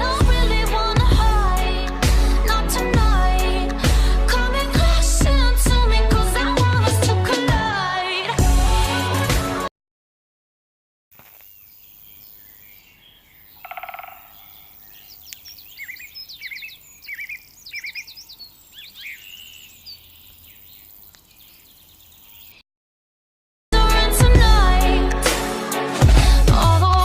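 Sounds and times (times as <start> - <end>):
birds chirping: 11.2 - 22.6
faint outdoor hiss: 11.2 - 22.6
buzzy rattling bird call: 13.6 - 18.1.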